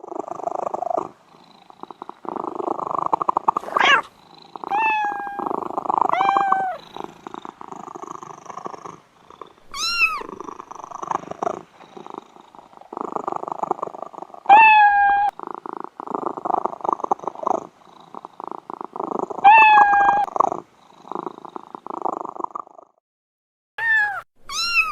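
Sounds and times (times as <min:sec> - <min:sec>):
cat purring: 0:00.0 - 0:23.0
cat meowing: 0:03.6 - 0:04.1, 0:04.7 - 0:05.5, 0:06.1 - 0:06.8, 0:09.7 - 0:10.4, 0:14.5 - 0:15.3, 0:19.4 - 0:20.3, 0:23.8 - 0:24.9.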